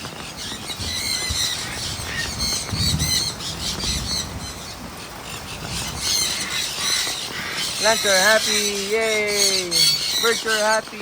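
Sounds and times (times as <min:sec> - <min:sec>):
birds squawking and chirping: 0:00.0 - 0:11.0
hard rain hissing: 0:00.0 - 0:11.0.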